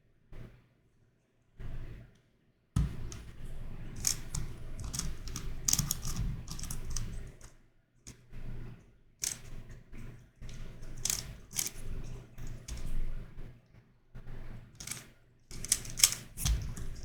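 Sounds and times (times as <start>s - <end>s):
sharp knock: 2.8s - 3.2s
plastic puzzle clicking and rattling: 3.9s - 7.5s, 9.2s - 9.5s, 10.4s - 13.0s, 14.8s - 17.0s.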